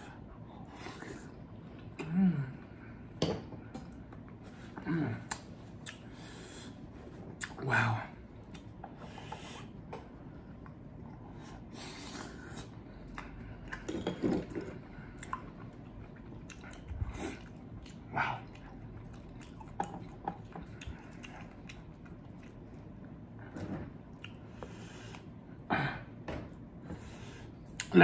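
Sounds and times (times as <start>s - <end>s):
wet chewing and squishing: 14.8s - 23.3s.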